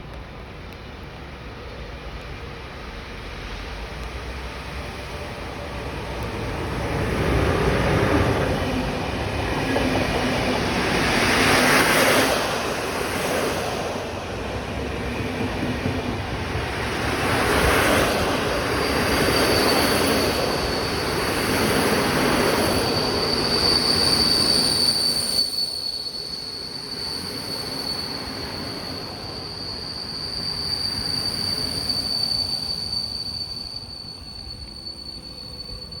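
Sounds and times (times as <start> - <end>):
high-pitched brake squeal: 16.4 - 36.0.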